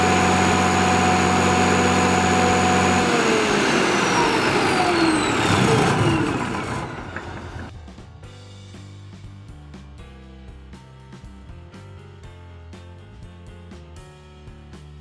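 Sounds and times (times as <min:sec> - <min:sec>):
diesel generator running and winding down: 0:00.0 - 0:08.1.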